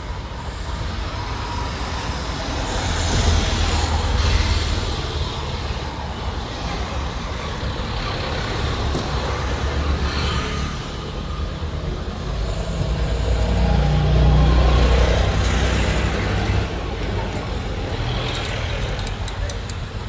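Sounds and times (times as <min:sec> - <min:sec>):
vehicle engine rumbling: 0:16.2 - 0:20.0.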